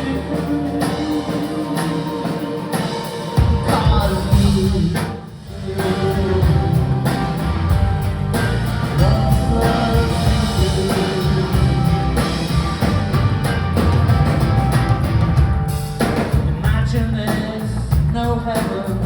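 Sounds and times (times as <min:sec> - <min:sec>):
person singing: 0:00.0 - 0:07.8, 0:08.9 - 0:12.5
rock band playing live: 0:00.0 - 0:19.0.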